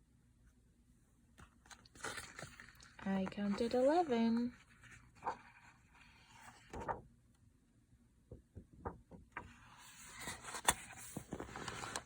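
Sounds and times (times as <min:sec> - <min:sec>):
page being turned: 0:01.4 - 0:07.0, 0:09.4 - 0:12.0.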